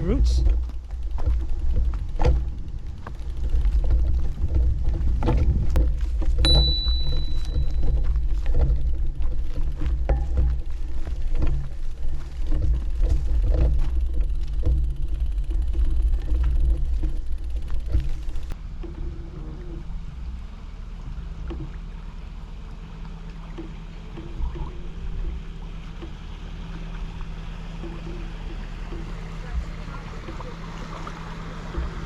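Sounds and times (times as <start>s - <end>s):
bicycle rattling and clicking: 0.0s - 18.9s
steady low hum: 0.0s - 32.0s
wind on microphone: 1.0s - 20.4s.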